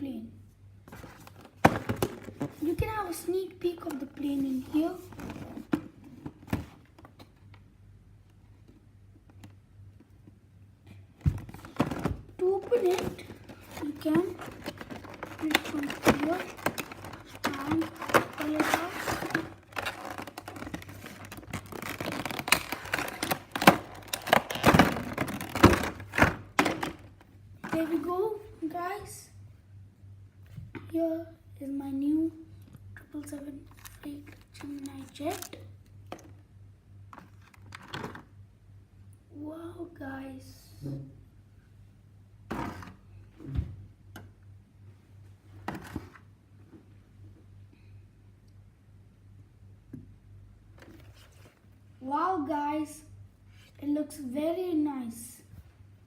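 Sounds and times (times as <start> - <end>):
low steady hum: 0.0 - 56.0
packaging scraping and rustling: 11.5 - 26.9, 33.7 - 35.6.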